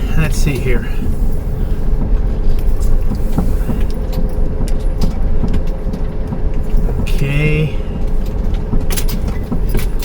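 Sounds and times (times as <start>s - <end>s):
engine rumble from inside cabin: 0.0s - 10.0s
light clicks and rattles: 0.2s - 10.0s.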